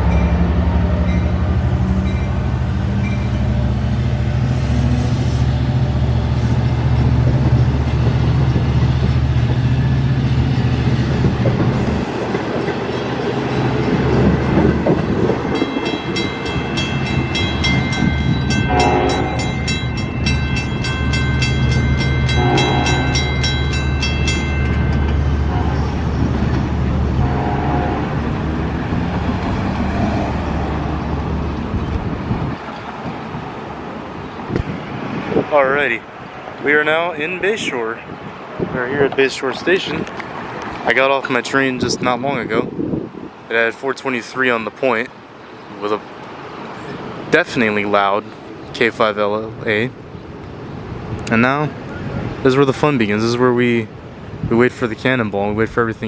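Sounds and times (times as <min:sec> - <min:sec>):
crossing bell ringing: 0:00.0 - 0:03.9, 0:12.6 - 0:28.0
diesel train engine hum: 0:00.0 - 0:38.8
train horn blasts: 0:17.0 - 0:19.9, 0:22.0 - 0:26.3, 0:27.1 - 0:28.4.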